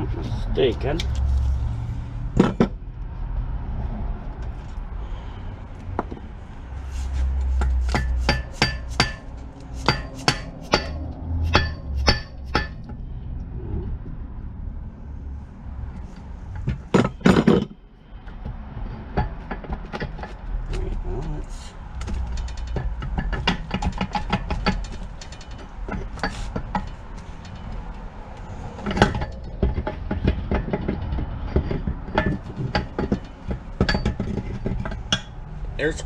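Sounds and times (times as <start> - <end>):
hammer tapping on metal: 7.6 - 12.9.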